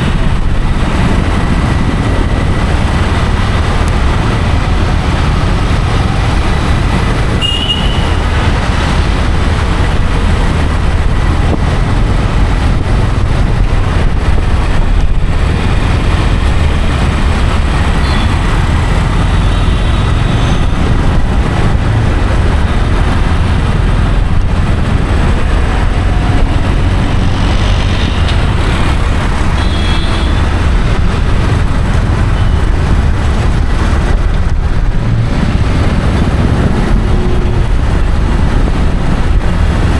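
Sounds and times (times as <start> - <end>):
moving vehicle rumble and road noise: 0.0 - 39.9.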